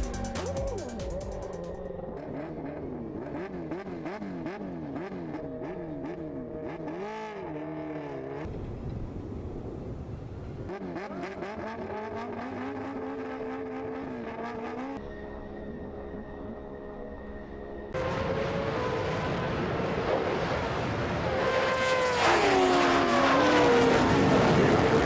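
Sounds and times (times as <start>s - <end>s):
racing engine revving and upshifting: 2.1s - 8.5s, 10.7s - 15.0s, 21.2s - 25.0s.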